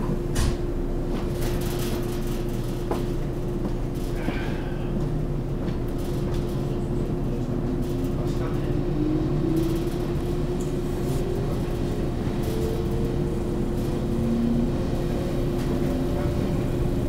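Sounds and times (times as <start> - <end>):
constant electric hum: 0.0 - 17.0
train wheels rumbling on rails: 0.0 - 17.0
light clicks and rattles: 5.5 - 8.7.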